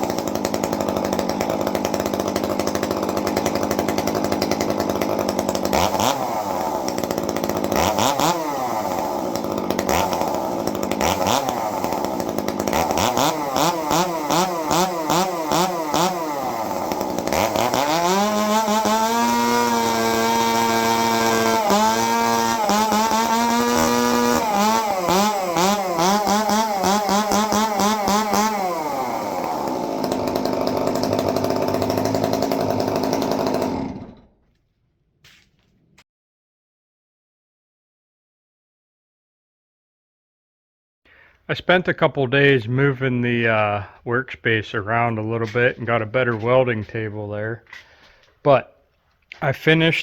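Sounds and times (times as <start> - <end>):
chainsaw revving and idling: 0.0 - 34.5, 44.5 - 48.6.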